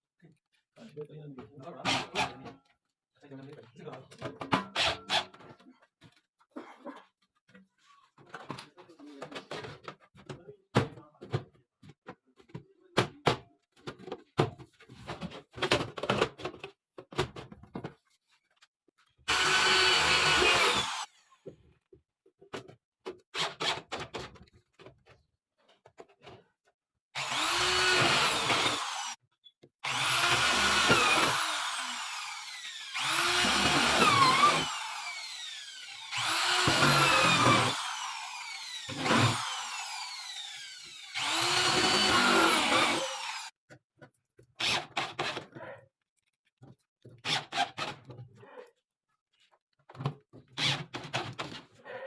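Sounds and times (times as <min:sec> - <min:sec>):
power drill bursts: 0:19.3 - 0:21.1, 0:27.2 - 0:29.2, 0:29.8 - 0:43.5.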